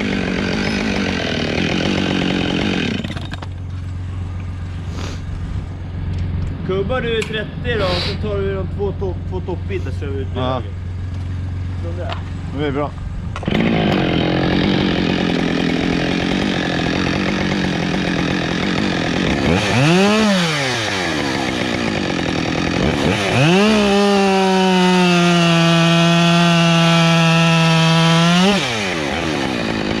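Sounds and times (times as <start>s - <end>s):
chainsaw cutting wood: 0.0s - 3.8s, 13.4s - 30.0s.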